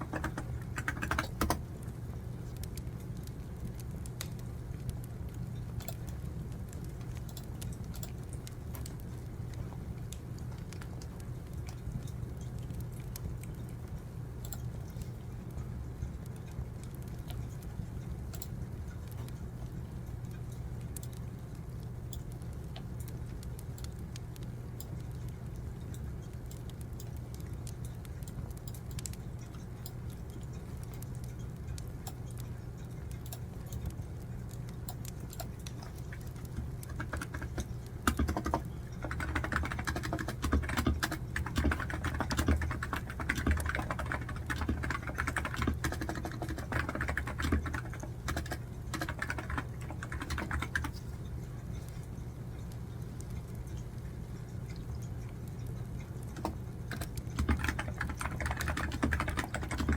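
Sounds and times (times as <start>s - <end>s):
computer keyboard typing: 0.0s - 1.7s, 2.5s - 15.1s, 16.0s - 19.5s, 22.1s - 51.5s, 55.6s - 59.9s
steady low hum: 0.0s - 59.9s
wood fire crackling: 1.6s - 39.0s.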